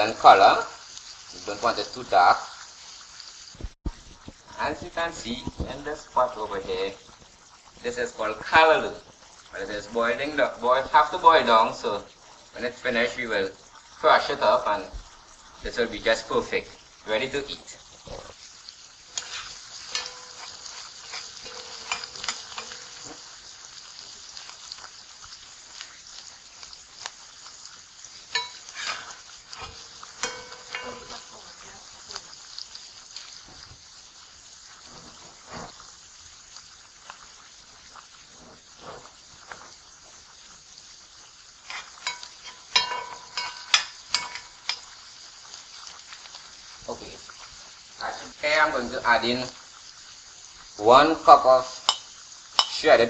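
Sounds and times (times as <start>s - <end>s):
vegetables sizzling in oil: 0.0s - 53.0s
spoon scraping pot: 19.1s - 23.3s, 28.3s - 31.5s, 41.6s - 45.0s.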